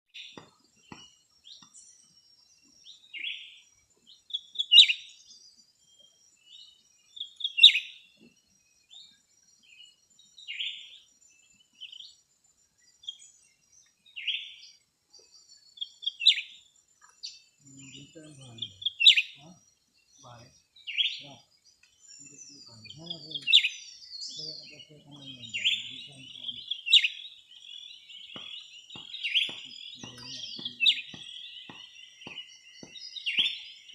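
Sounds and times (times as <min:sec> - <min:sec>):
songbird chirping: 0:00.1 - 0:33.9.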